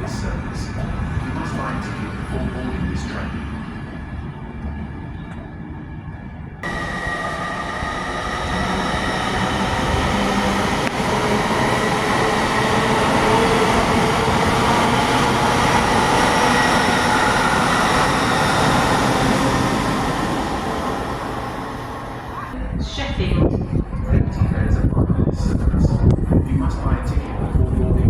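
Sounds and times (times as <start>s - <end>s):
train rushing with ringing whine: 0.0s - 22.6s.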